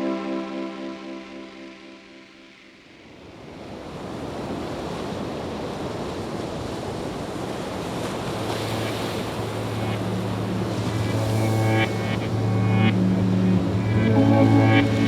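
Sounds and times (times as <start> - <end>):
ocean waves washing: 3.0 - 15.0.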